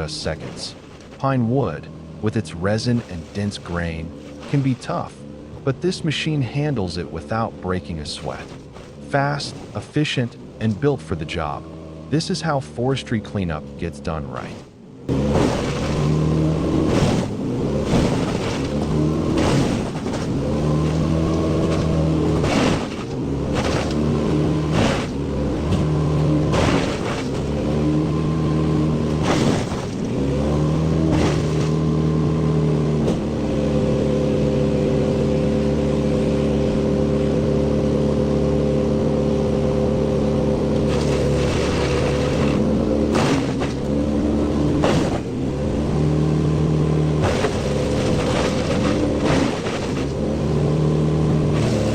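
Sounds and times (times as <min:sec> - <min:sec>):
wood cracking in chipper: 0:15.1 - 0:27.8, 0:29.0 - 0:30.2, 0:30.9 - 0:32.0, 0:40.8 - 0:44.0, 0:47.2 - 0:50.2, 0:51.5 - 0:51.9
wood chipper engine under load: 0:15.1 - 0:51.9.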